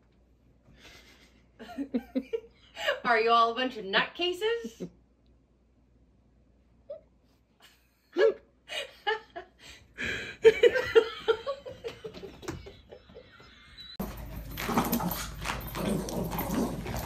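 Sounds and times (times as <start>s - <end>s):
person laughing: 7.6s - 13.9s.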